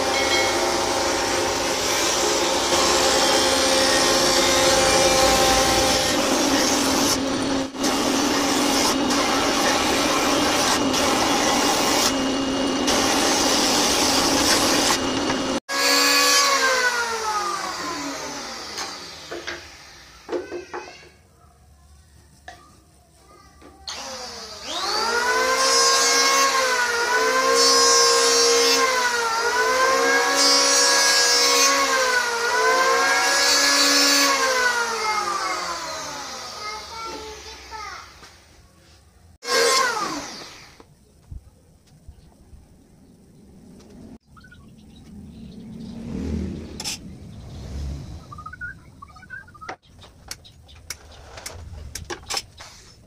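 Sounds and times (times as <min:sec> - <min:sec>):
power saw cutting wood: 0:00.0 - 0:20.9, 0:23.9 - 0:38.4, 0:39.4 - 0:40.9.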